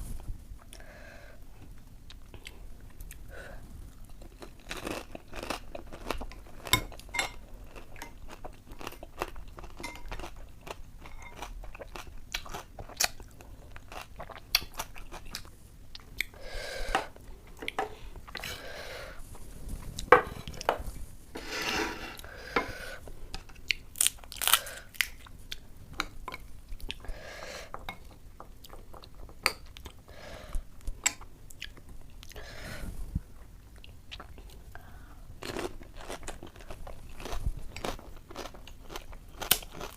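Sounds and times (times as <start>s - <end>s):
chewing: 35.4s - 39.9s.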